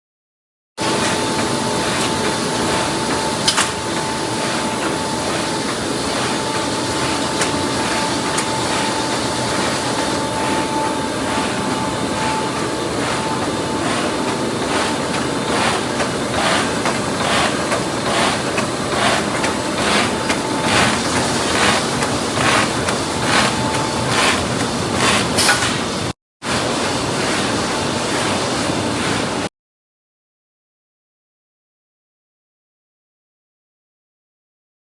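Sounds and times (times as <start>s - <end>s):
machine running: 0.8s - 29.5s
cutting strokes clacking: 11.3s - 25.8s.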